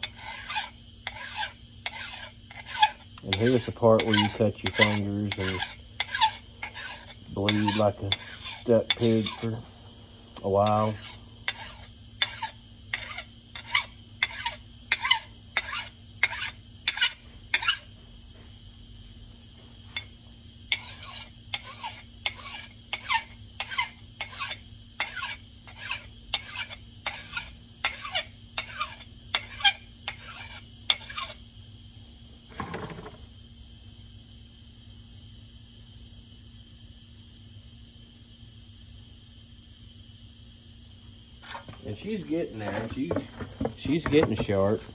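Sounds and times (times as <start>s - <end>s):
file scraping axe edge: 0.0s - 9.6s, 10.4s - 17.8s, 20.7s - 31.4s, 41.4s - 44.9s.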